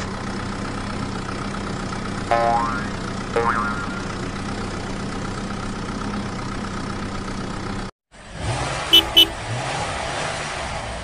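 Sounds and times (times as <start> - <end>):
steady vehicle noise: 0.0 - 11.0
car engine revving: 8.2 - 10.9
car horn beeps: 8.9 - 9.4.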